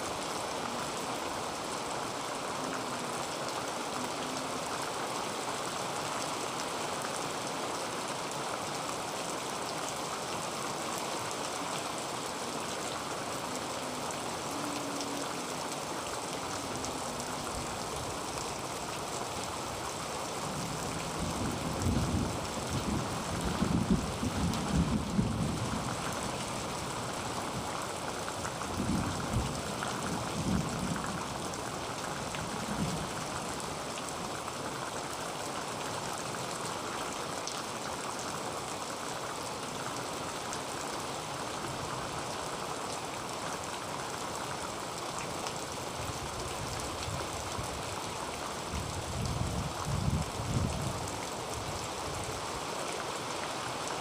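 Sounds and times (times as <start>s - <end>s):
heavy rain on a tin roof: 0.0s - 54.0s.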